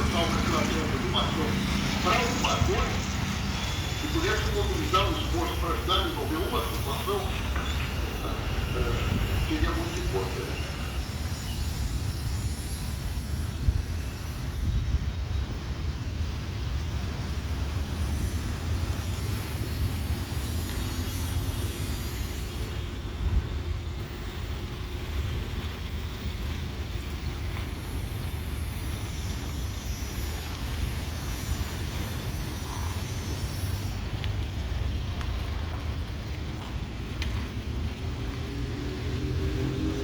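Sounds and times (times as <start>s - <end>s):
jet engine rumble: 0.0s - 40.0s
wind noise on microphone: 10.9s - 40.0s.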